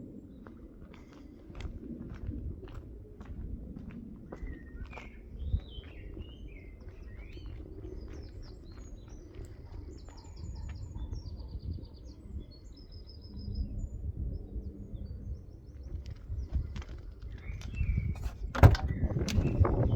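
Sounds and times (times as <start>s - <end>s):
small birds chirping: 4.3s - 19.9s.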